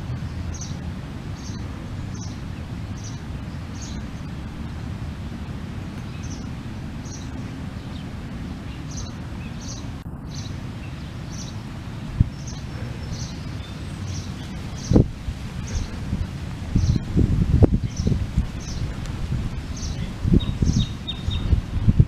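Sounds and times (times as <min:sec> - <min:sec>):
steady low rumble: 0:00.0 - 0:22.0
small bird chirping: 0:19.7 - 0:21.6.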